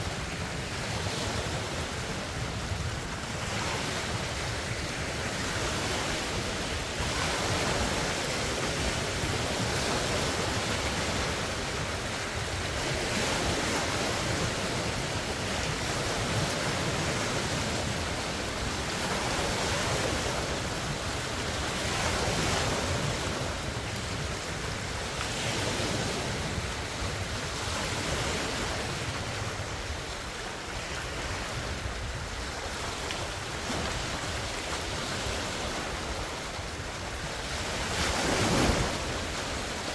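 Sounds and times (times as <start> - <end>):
waves breaking on shore: 0.0 - 39.9
wind buffeting microphone: 0.0 - 39.9.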